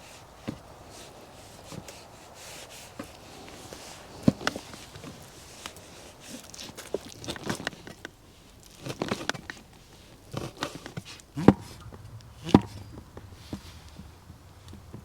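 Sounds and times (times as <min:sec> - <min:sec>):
knocks and clatters of handling: 0:02.9 - 0:15.0.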